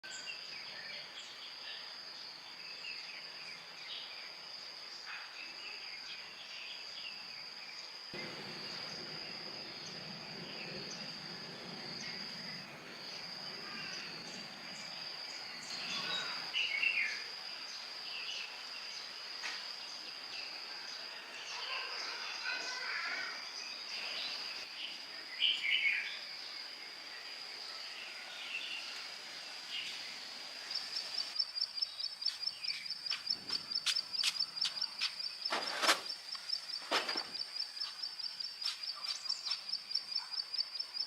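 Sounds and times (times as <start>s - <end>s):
low rumble: 8.2s - 15.0s
high-pitched insect drone: 8.2s - 18.5s.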